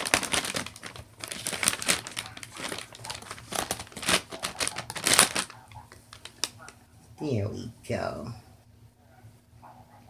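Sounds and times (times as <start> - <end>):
wipe crinkling and rustling: 0.0 - 6.8.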